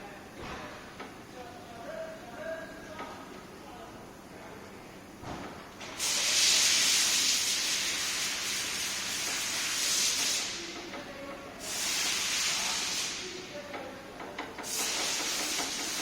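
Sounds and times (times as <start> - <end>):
compressed air hissing: 5.8 - 10.7, 11.6 - 13.4, 14.6 - 16.0.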